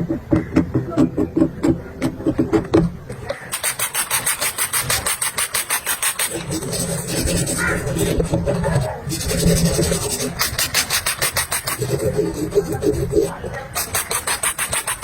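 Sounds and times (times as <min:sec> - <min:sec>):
rasp filing a hoof: 0:03.5 - 0:15.0.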